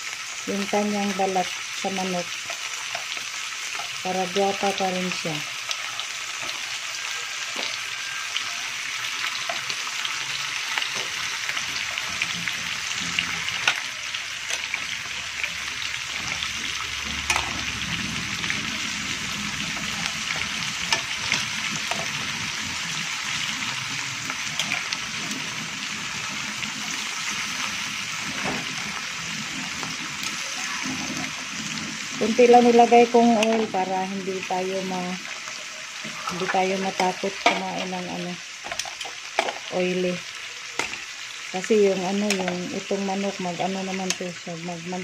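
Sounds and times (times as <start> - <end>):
chicken sizzling in hot oil: 0.0 - 45.0
metal tongs clicking on pan: 17.3 - 17.6, 33.4 - 33.6, 42.2 - 42.6, 44.0 - 44.2.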